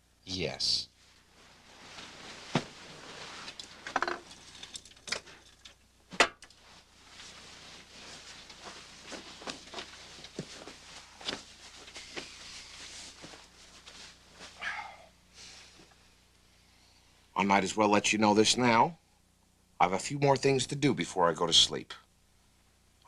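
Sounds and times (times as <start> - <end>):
soft rustling: 1.0 - 14.8.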